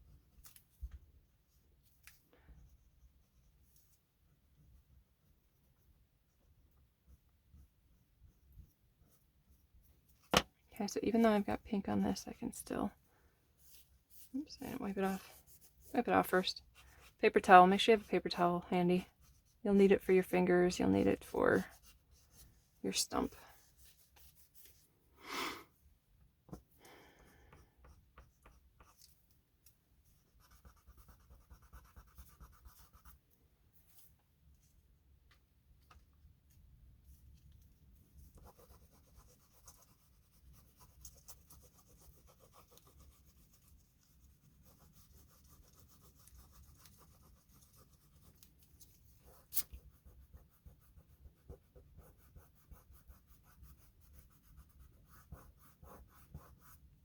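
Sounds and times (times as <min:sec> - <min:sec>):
pastels scratching on paper: 0:13.6 - 0:24.8, 0:30.0 - 0:33.3, 0:37.6 - 0:57.0.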